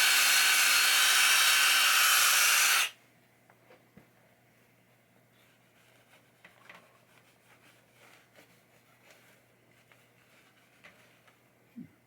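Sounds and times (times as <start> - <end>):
faint handling clicks and rubs: 4.6 - 11.8.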